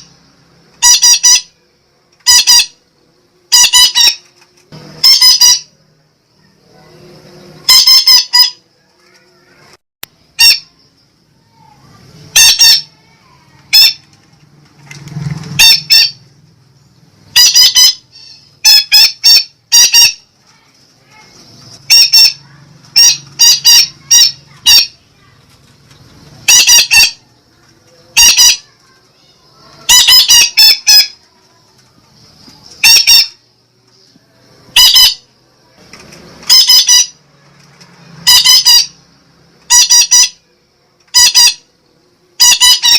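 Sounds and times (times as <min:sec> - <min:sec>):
parakeet squawking: 0:00.8 - 0:01.6, 0:02.2 - 0:02.8, 0:03.5 - 0:04.3, 0:05.0 - 0:05.8, 0:07.6 - 0:08.6, 0:10.3 - 0:10.8, 0:12.2 - 0:14.1, 0:15.6 - 0:16.3, 0:17.3 - 0:20.3, 0:21.1 - 0:25.0, 0:26.4 - 0:27.3, 0:28.0 - 0:28.8, 0:29.6 - 0:31.2, 0:32.8 - 0:33.4, 0:34.7 - 0:35.3, 0:36.4 - 0:37.2, 0:38.2 - 0:39.0, 0:39.7 - 0:40.4, 0:41.1 - 0:41.7, 0:42.4 - 0:42.9.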